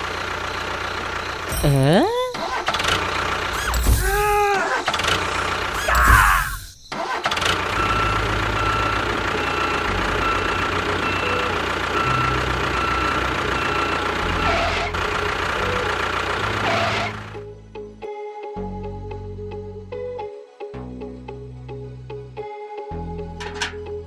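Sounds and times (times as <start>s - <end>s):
loud engine burst: 0.0s - 12.0s, 12.8s - 17.4s
engine starting and running: 0.0s - 17.5s, 23.4s - 23.8s.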